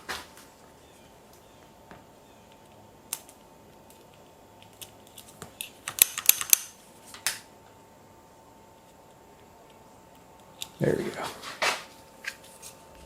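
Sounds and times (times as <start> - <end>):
sharp metallic clicks: 5.6 - 6.8.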